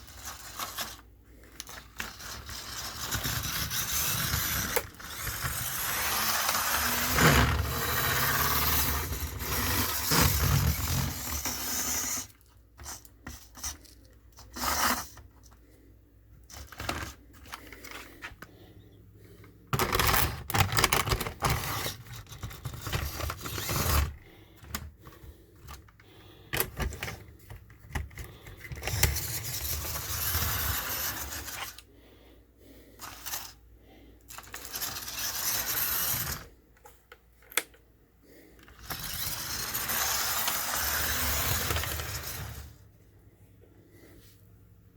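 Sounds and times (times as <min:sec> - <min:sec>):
model train motor whirring: 0:01.6 - 0:13.0, 0:22.8 - 0:24.2, 0:28.8 - 0:31.8, 0:33.0 - 0:33.6, 0:34.3 - 0:36.5, 0:38.7 - 0:42.7.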